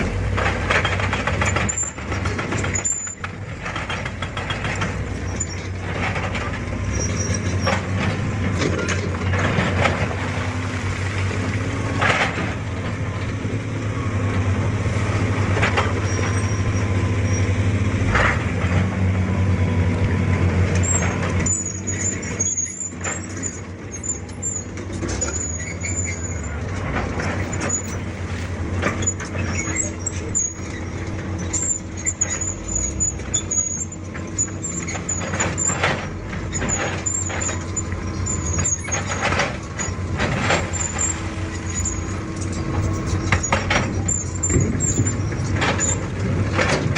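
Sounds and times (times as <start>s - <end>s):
excavator diesel engine: 0.0s - 46.9s
metal knocks and clanks: 0.2s - 13.2s, 24.7s - 46.9s
high-pitched squeaking: 36.6s - 46.0s.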